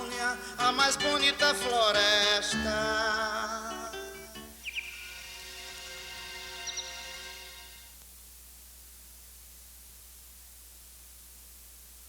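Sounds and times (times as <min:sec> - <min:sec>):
steady hiss: 0:04.4 - 0:12.0.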